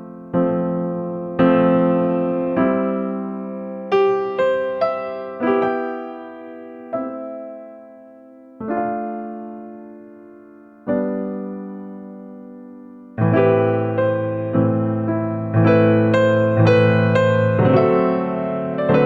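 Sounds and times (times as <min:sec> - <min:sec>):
gentle electric piano: 0:00.0 - 0:19.0.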